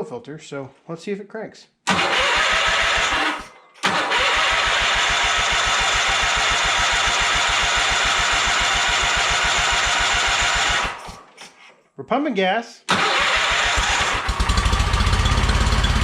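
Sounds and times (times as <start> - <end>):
engine cranking on starter: 1.9 - 11.4, 12.9 - 16.0.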